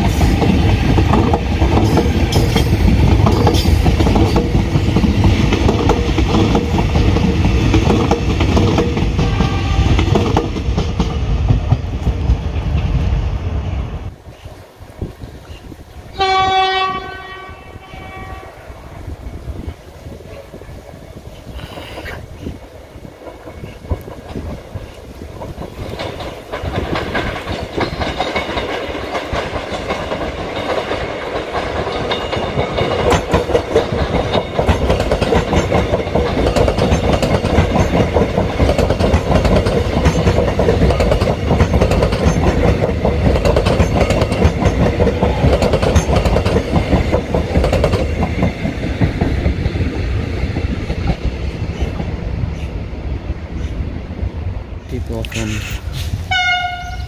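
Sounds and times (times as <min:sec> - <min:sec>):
electric trains passing: 0:00.0 - 0:57.0
wheels clicking over rail joints: 0:23.0 - 0:52.2.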